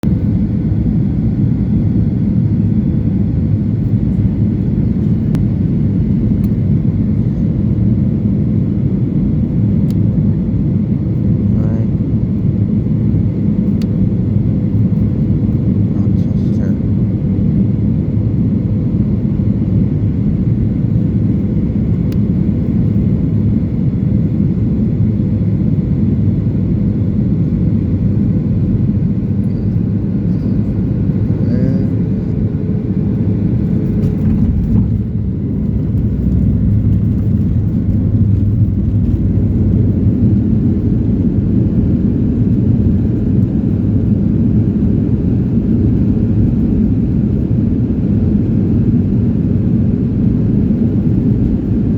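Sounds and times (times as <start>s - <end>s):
airplane cabin engine rumble: 0.0s - 51.9s.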